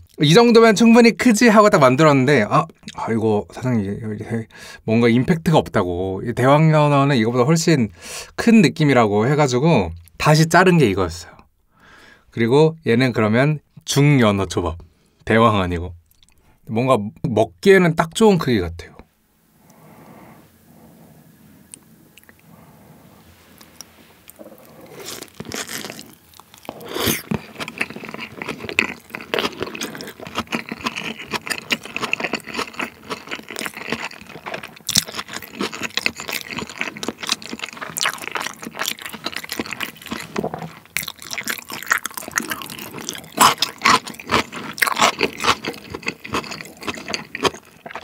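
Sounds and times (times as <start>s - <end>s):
close chewing with wet mouth clicks: 23.6s - 48.0s.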